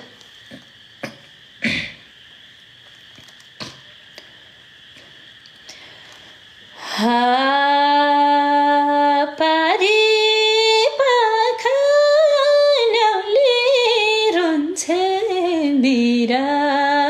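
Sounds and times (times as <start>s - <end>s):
faint hiss: 0.0s - 17.0s
woman singing folk song: 6.8s - 17.0s.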